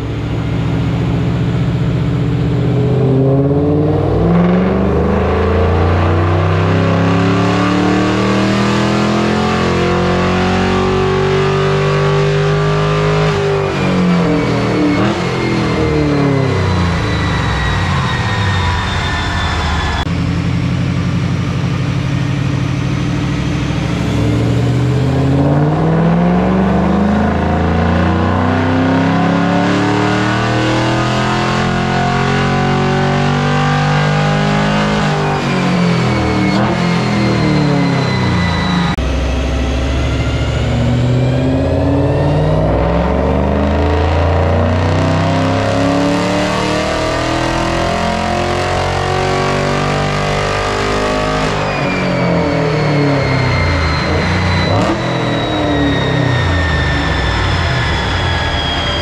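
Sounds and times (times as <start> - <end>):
car engine revving under load: 0.0 - 59.0.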